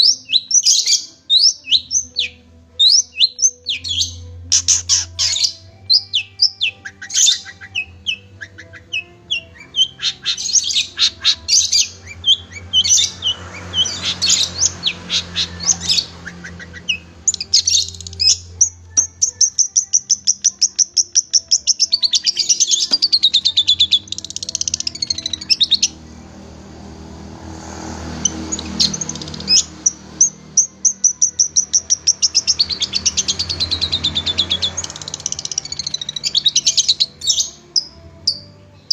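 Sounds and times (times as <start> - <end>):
shrike singing chirps and trills: 0.0 - 26.0, 28.0 - 38.9.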